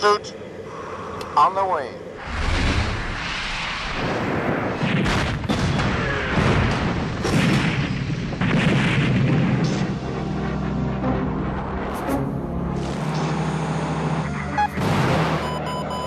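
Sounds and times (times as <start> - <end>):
continuous low rumble: 0.0 - 16.0
heavy explosion blasts: 2.2 - 10.6.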